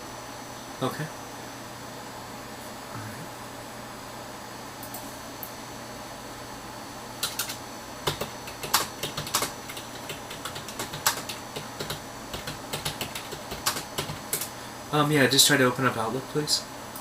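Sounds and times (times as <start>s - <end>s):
steady background hum: 0.0s - 17.0s
computer keyboard typing: 7.2s - 14.5s.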